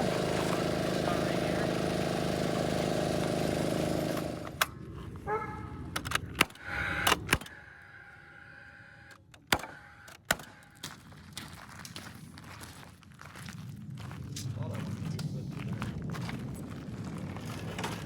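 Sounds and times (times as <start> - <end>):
small engine running: 0.0 - 5.2, 5.9 - 11.1
sharp clicks and knocks: 5.9 - 7.5, 9.1 - 10.6.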